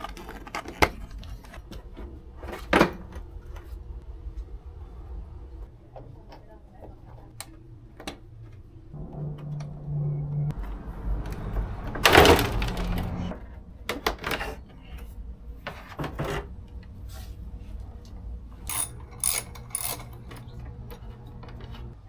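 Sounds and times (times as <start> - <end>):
plastic rustle and scrape: 0.0 - 2.7.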